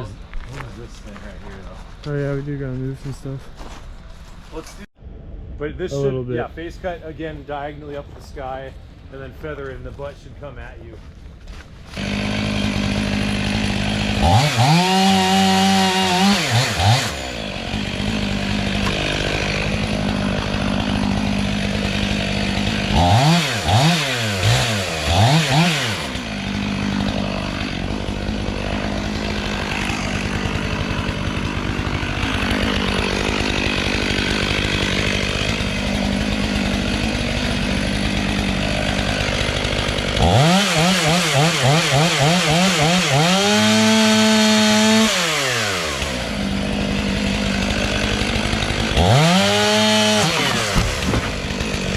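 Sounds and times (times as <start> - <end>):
chainsaw cutting wood at full throttle: 11.9 - 51.9
chainsaw idling: 11.9 - 51.9.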